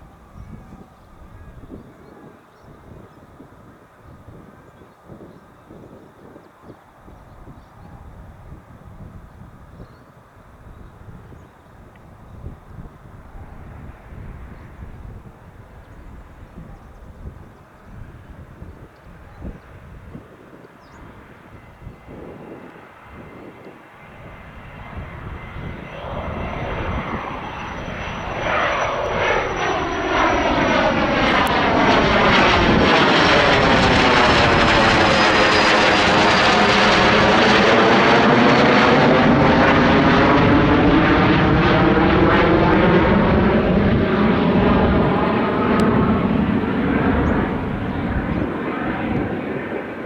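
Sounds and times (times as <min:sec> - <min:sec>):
jet engines whining: 0:21.0 - 0:50.0.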